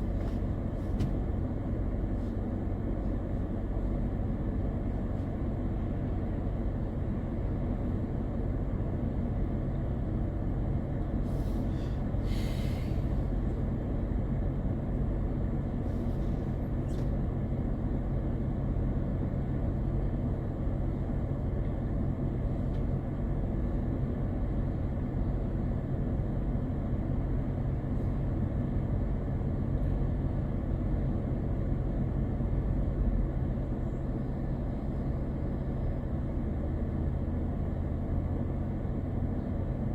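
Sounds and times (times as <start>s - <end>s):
car driving interior drone: 0.0s - 39.9s
short hisses: 11.3s - 13.2s.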